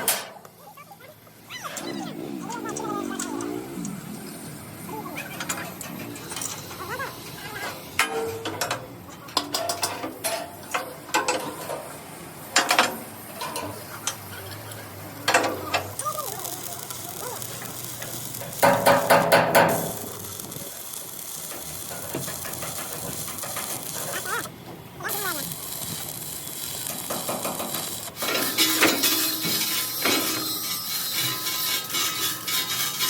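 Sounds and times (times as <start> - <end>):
steady noisy background: 0.0 - 33.0
metallic clanks and knocks: 8.0 - 11.9, 12.5 - 14.2
hard metal strikes: 18.6 - 20.2.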